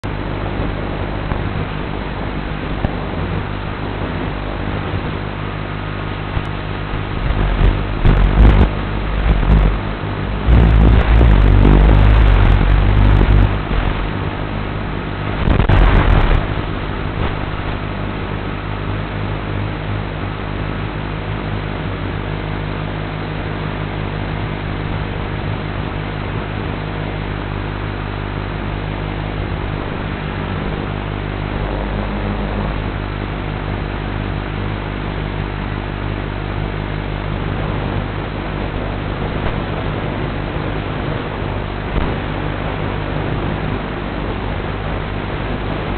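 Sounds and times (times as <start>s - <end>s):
quadcopter motors humming: 6.4s - 14.3s, 31.4s - 32.9s.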